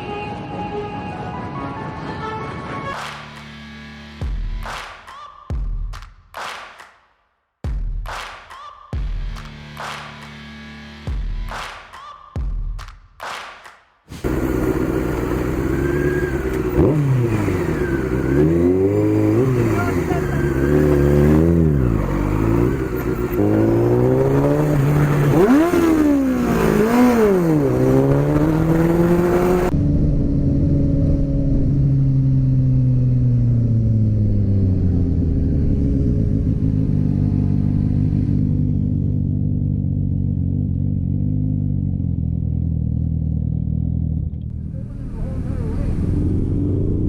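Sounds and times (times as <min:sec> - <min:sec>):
motorcycle engine revving: 0:14.1 - 0:47.0.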